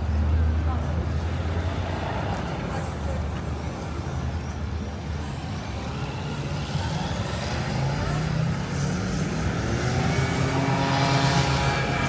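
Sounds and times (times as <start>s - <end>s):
vehicle engine running: 6.9s - 12.0s.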